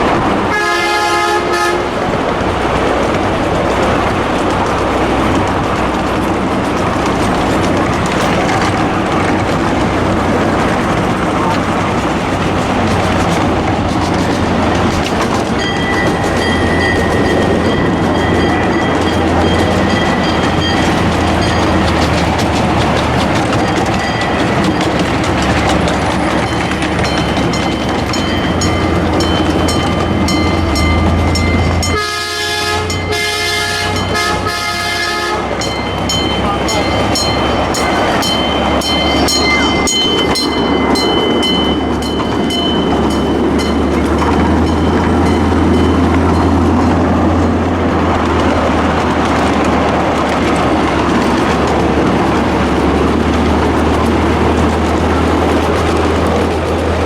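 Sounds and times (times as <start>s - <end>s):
train engine drone: 0.0s - 57.0s
train wheels clicking over rail joints: 0.0s - 57.0s
multi-chime air horn: 31.7s - 35.5s.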